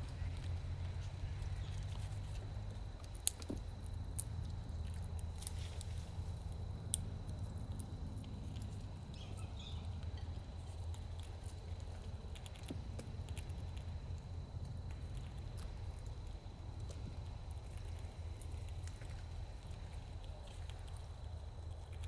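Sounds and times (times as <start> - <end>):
steady low rumble: 0.0 - 22.0
clicks and taps of nuts chewed: 1.4 - 22.0
faint bird chirp: 9.1 - 10.0.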